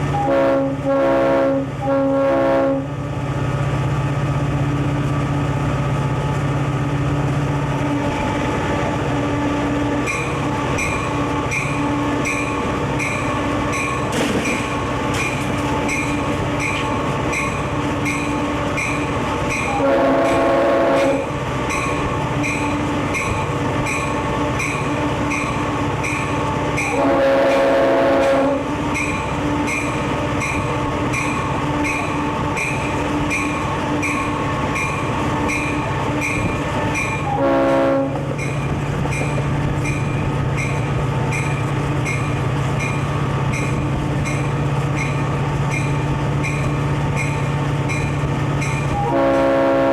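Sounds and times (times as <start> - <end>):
diesel locomotive running: 0.0 - 49.9
locomotive air horn: 0.1 - 2.9, 19.7 - 21.3, 26.8 - 28.8, 37.2 - 38.3, 48.9 - 49.9
locomotive bell ringing: 10.0 - 37.5, 38.3 - 49.2.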